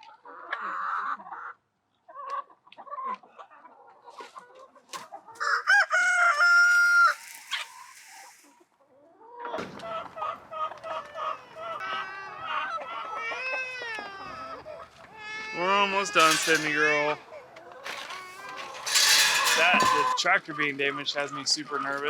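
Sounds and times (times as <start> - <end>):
chickens clucking: 0.0 - 22.0
rooster crowing: 5.4 - 7.7.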